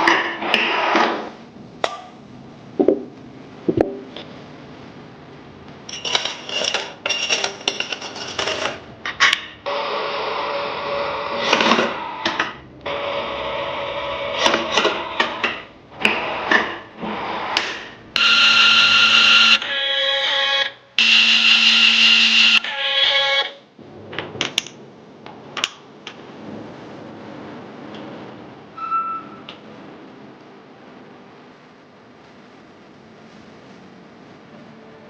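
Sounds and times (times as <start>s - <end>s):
power tool running: 21.0s - 22.8s.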